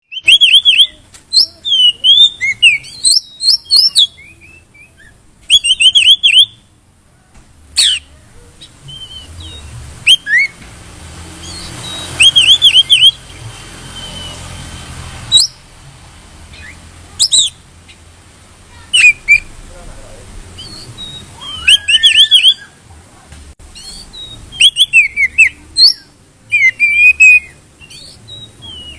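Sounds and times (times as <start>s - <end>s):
bird singing whistled notes: 0.0s - 6.7s, 7.8s - 10.6s, 11.4s - 15.7s, 16.5s - 17.6s, 18.9s - 19.6s, 20.6s - 22.8s, 23.7s - 28.9s.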